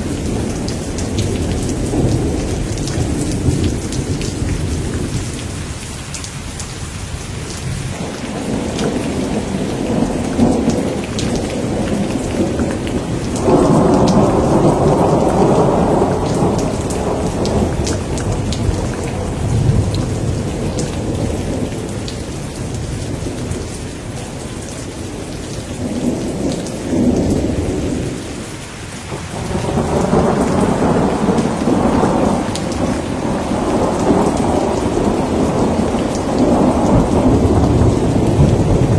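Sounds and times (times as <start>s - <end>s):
rolling thunder: 0.0s - 5.6s, 7.6s - 23.7s, 29.1s - 38.9s
steady rain: 0.0s - 38.9s.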